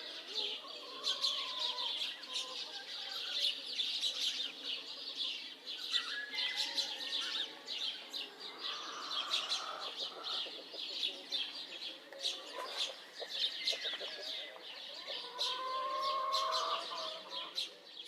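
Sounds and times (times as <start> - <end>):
small birds chirping chorus: 0.0 - 18.0.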